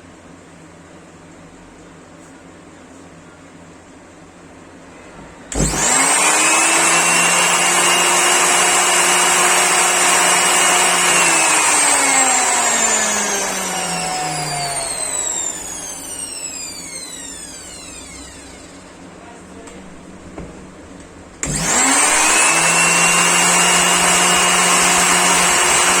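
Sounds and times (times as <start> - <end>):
angle grinder whine: 5.5 - 19.1, 21.4 - 26.0.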